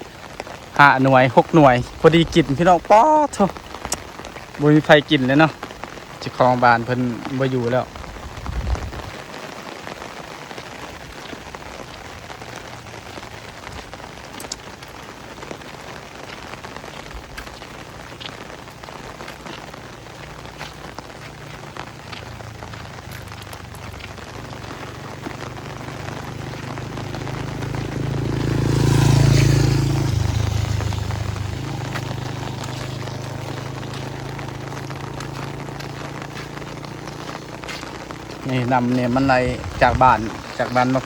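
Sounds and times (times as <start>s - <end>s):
rain pattering: 0.0s - 41.0s
vehicle engine passing: 19.8s - 41.0s.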